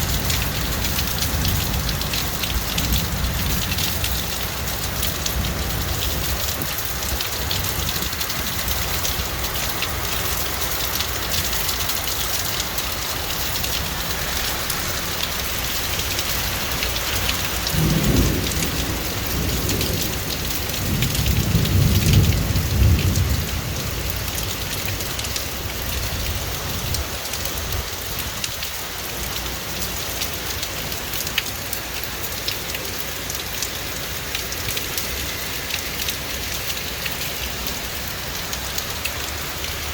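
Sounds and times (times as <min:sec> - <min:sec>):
heavy rain falling: 0:00.0 - 0:39.9
thunder rumbling: 0:17.2 - 0:26.9.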